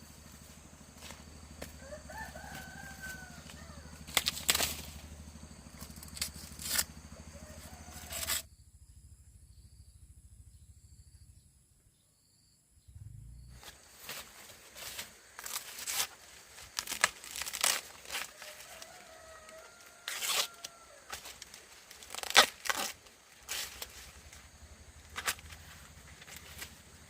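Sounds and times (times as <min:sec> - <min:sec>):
faint drawn-out animal call: 0:01.5 - 0:08.6
dry corn husks tearing and rustling: 0:02.4 - 0:05.1, 0:05.8 - 0:06.9, 0:08.1 - 0:08.4, 0:13.6 - 0:27.0.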